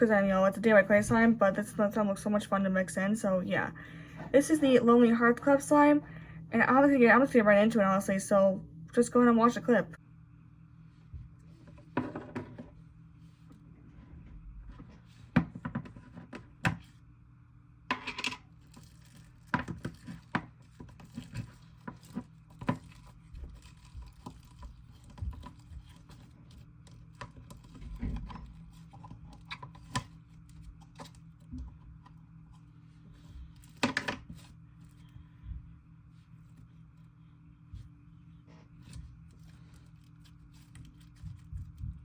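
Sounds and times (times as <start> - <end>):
faint low hum: 0.0 - 42.0
slime worked by hand: 18.4 - 32.1.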